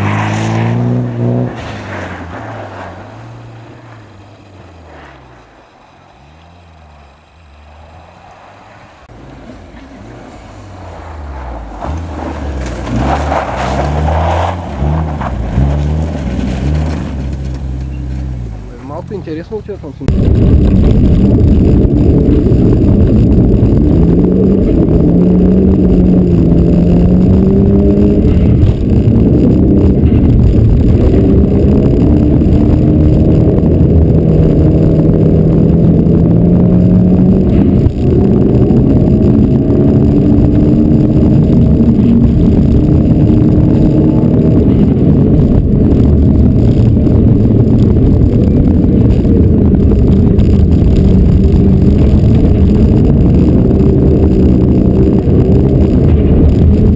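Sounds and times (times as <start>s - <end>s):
car engine revving hard: 0.0s - 2.4s, 20.1s - 56.9s.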